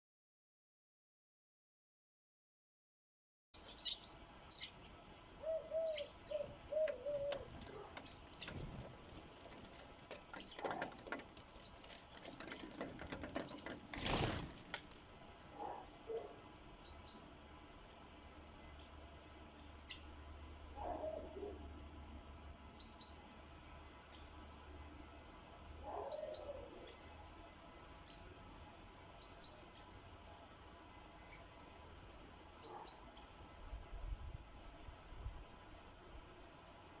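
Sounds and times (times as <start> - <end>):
sparrows chirping: 3.6 - 25.0, 25.8 - 33.5
wings fluttering: 6.3 - 15.2.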